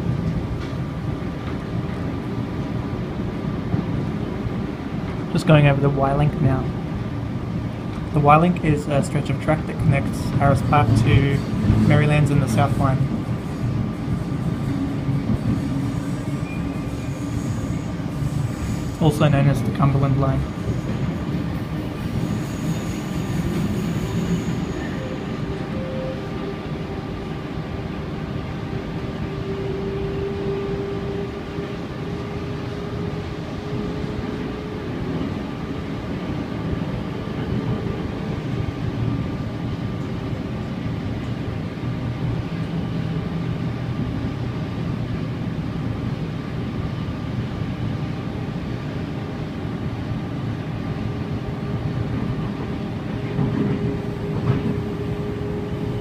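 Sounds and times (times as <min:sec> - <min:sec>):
train wheels rumbling: 0:00.0 - 0:56.0
higher tone: 0:24.6 - 0:26.9.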